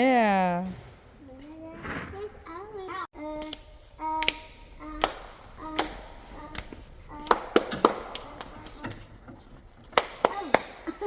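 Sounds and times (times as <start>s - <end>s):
hard objects tapping and knocking: 4.2s - 11.0s.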